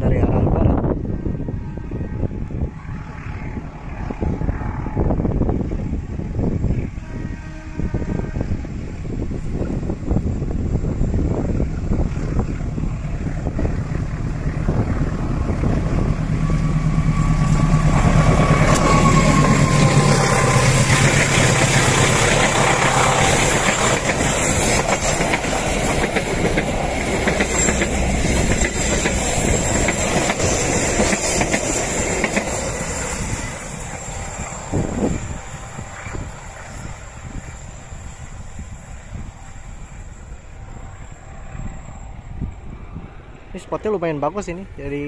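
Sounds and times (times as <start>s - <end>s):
locomotive engine hum: 0.2s - 45.0s
train wheels clicking on track: 9.0s - 40.5s.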